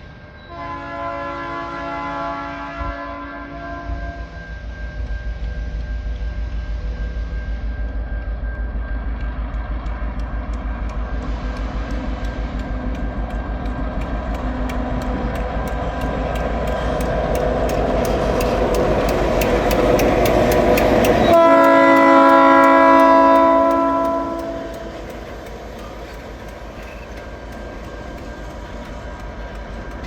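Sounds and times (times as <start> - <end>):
diesel locomotive rumble: 0.0 - 30.0
locomotive horn: 0.5 - 4.2, 21.2 - 25.1.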